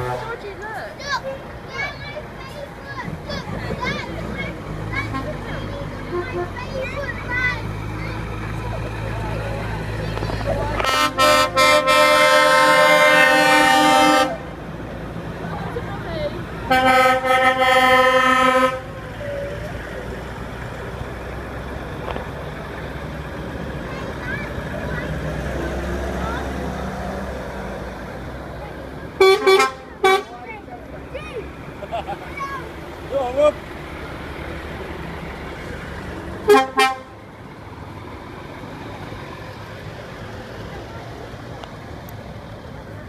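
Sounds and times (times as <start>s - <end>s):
traffic rumble: 0.0s - 43.0s
lorry horn blasts: 10.8s - 14.5s, 16.7s - 19.0s, 29.2s - 30.4s, 36.4s - 37.2s.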